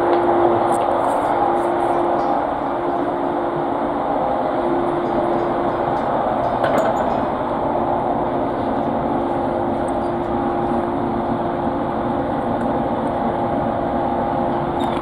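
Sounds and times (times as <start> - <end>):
train hum inside passenger car: 0.0 - 15.0.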